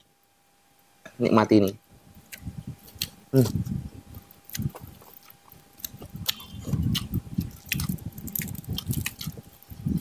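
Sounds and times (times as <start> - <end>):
person chewing: 2.2 - 10.0.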